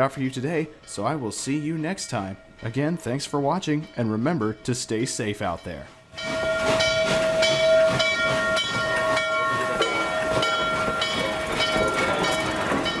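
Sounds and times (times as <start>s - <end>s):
steam locomotive exhaust chuffing: 6.2s - 13.0s.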